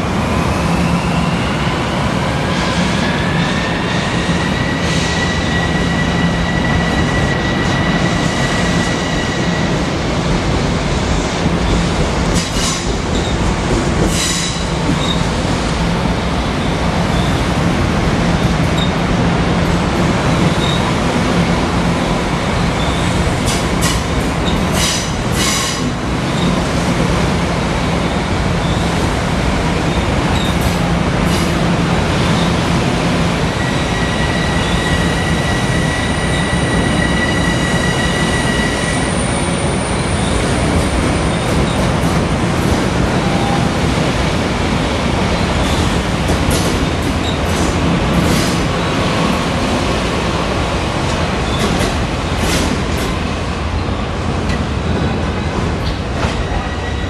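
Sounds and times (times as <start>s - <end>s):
train electric hum: 0.0s - 57.0s.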